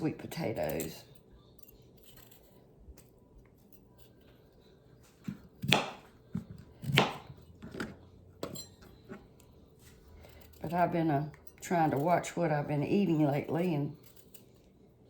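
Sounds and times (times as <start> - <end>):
knife chopping on cutting board: 5.2 - 9.2.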